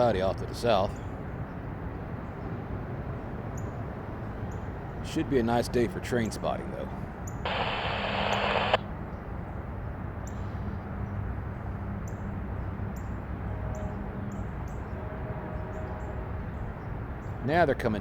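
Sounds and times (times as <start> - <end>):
steady low rumble: 7.5 - 8.8.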